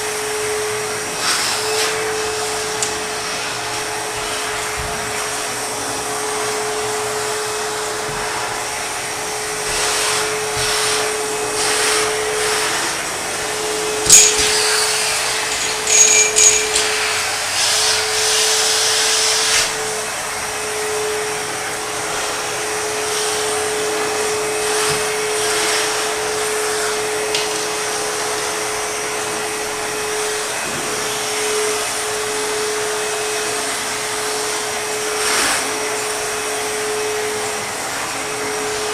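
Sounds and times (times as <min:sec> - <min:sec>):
vacuum motor whine: 0:00.0 - 0:38.9
vacuum tool knocking on hard surface: 0:08.0 - 0:08.5, 0:14.0 - 0:17.2.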